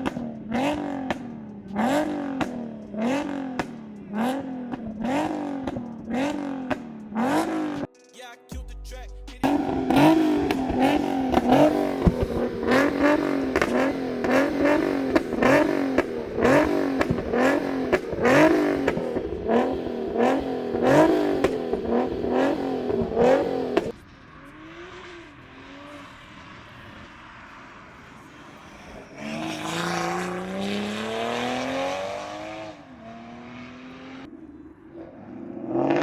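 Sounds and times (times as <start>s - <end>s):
car engine revving: 0.0s - 7.9s, 8.9s - 36.0s
exhaust crackles: 0.0s - 7.9s, 8.8s - 36.0s.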